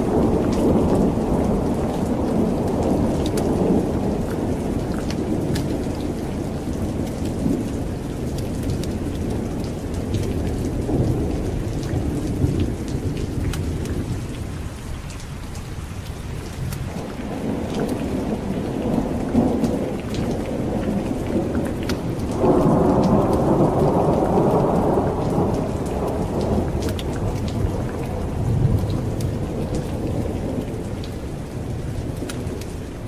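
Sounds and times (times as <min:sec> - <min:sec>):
rolling thunder: 0:00.0 - 0:14.7, 0:16.3 - 0:33.0
steady rain: 0:00.0 - 0:33.0.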